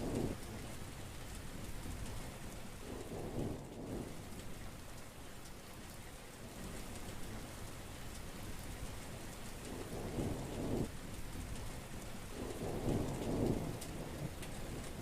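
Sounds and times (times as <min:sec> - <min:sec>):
low rumbles of thunder: 0:00.0 - 0:01.0, 0:02.8 - 0:04.7, 0:09.6 - 0:11.6, 0:12.2 - 0:15.0
heavy rain falling: 0:00.0 - 0:15.0.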